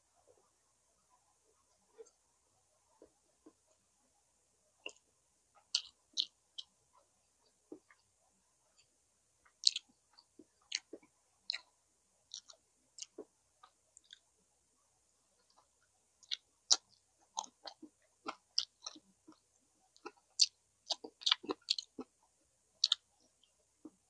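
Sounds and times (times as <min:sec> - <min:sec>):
mouth chewing wetly: 0:05.6 - 0:06.7, 0:08.8 - 0:11.7, 0:12.3 - 0:14.3, 0:15.4 - 0:22.2, 0:22.8 - 0:23.1.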